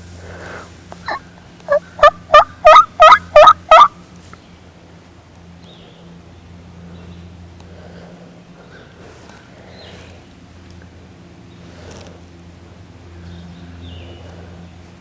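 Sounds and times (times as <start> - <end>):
turkey call yelps: 1.0 - 3.9.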